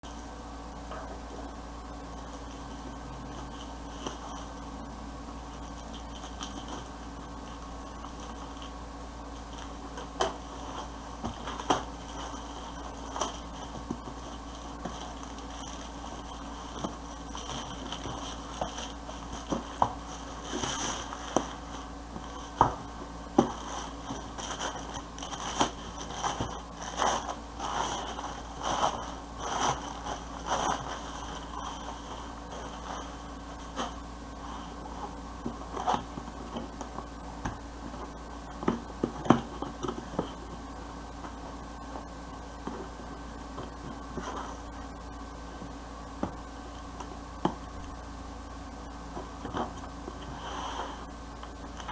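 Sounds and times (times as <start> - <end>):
steady low hum: 0.0 - 51.9
packaging being handled: 9.4 - 36.8.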